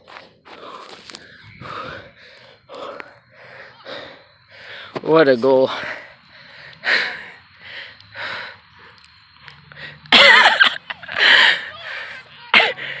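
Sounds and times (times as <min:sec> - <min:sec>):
person breathing hard: 0:00.0 - 0:05.0, 0:05.7 - 0:09.1, 0:09.7 - 0:10.2, 0:11.0 - 0:13.0.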